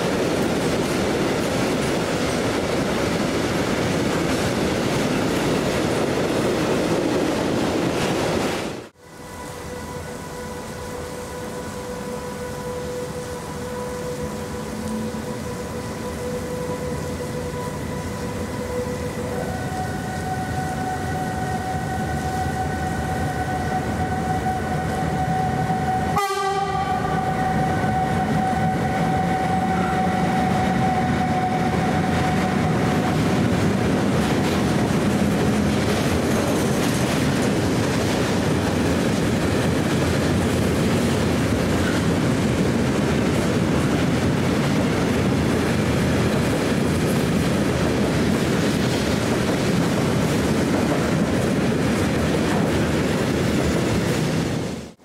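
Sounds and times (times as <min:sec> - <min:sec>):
electric locomotive high tones: 0:08.9 - 0:45.4.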